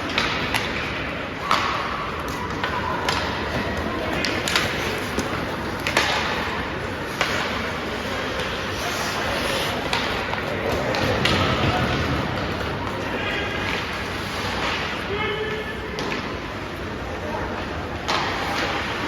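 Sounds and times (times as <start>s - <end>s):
hockey sticks and puck cracking: 0.0s - 16.9s, 17.8s - 19.0s
crowd chatter: 0.0s - 19.0s.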